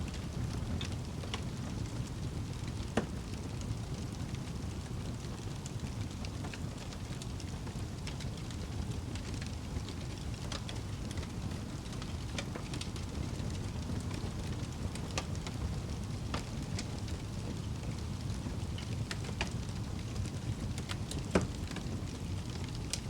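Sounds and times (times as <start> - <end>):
fire crackling and popping: 0.0 - 23.0
fire rumbling: 0.0 - 23.0.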